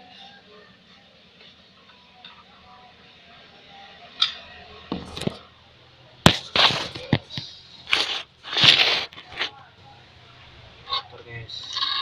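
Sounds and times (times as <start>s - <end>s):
hard parts clicking and knocking: 6.3s - 9.5s.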